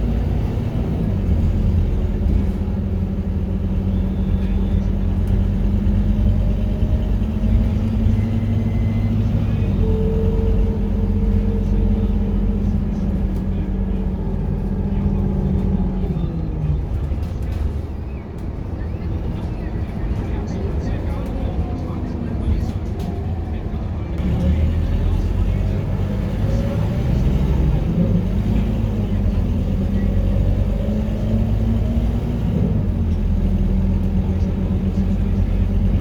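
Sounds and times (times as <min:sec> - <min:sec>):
bus diesel engine drone: 0:00.0 - 0:36.0
low engine rumble: 0:00.0 - 0:36.0.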